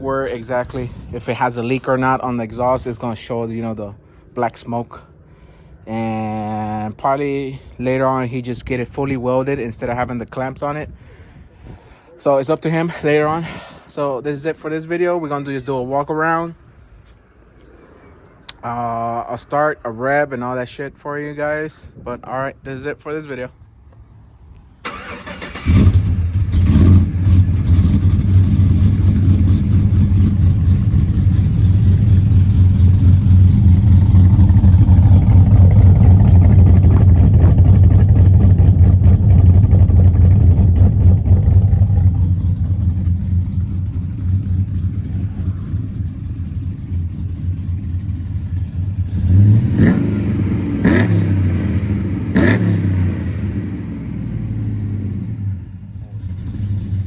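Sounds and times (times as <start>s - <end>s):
truck engine starting and idling: 24.7s - 57.0s
engine revving: 24.8s - 57.0s.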